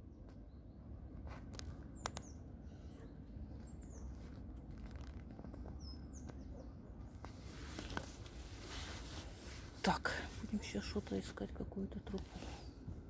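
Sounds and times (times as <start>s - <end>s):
faint bird chirps: 0.0s - 7.6s.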